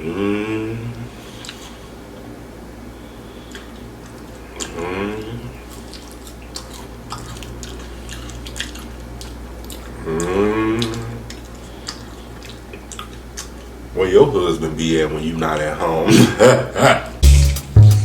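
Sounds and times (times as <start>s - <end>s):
person humming mmm: 0.0s - 1.1s, 10.0s - 11.3s, 17.2s - 18.0s
chewing fried food: 1.1s - 2.3s, 3.4s - 13.9s.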